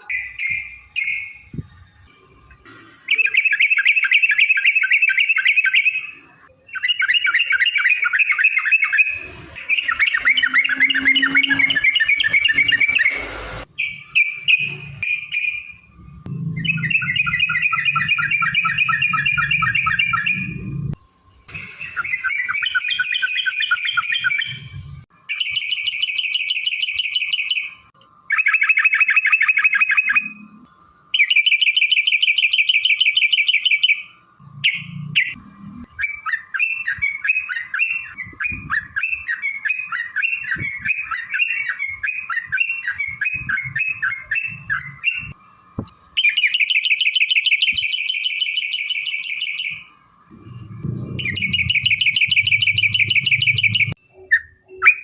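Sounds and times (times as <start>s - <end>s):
low rumble: 50.3s - 54.0s
bird chattering notes: 50.4s - 55.0s.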